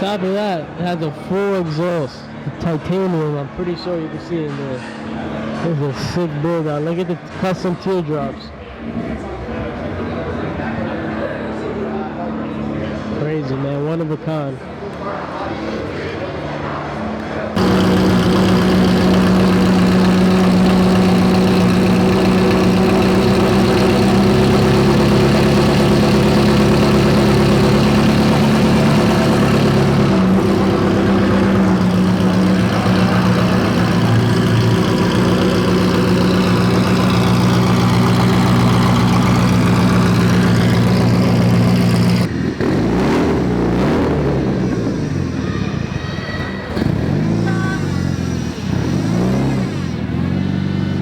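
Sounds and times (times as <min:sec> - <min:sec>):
car engine idling: 0:17.6 - 0:51.0
rough engine sound: 0:17.6 - 0:51.0.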